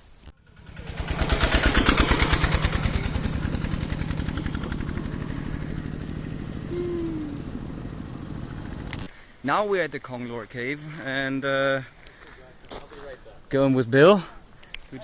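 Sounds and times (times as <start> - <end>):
motorcycle engine running: 0.4 - 9.0.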